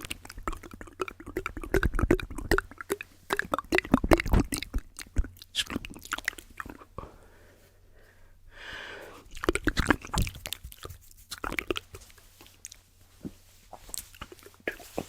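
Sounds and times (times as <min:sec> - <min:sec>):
wet mouth clicks: 0:00.0 - 0:06.9, 0:09.3 - 0:12.8, 0:13.9 - 0:14.9
soft breathy hiss: 0:06.4 - 0:09.4, 0:10.9 - 0:15.0.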